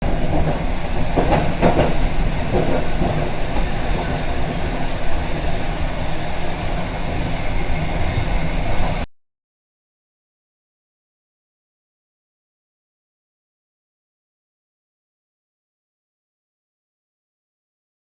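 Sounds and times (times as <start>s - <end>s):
wheels clicking over rail joints: 0.0s - 5.7s
train rumbling on rails: 0.0s - 9.1s.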